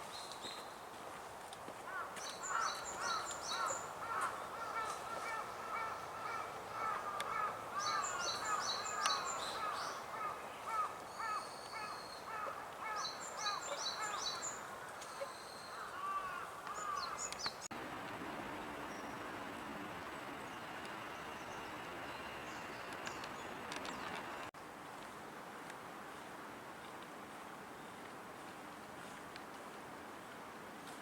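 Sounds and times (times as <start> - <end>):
birds chattering: 1.9 - 17.7.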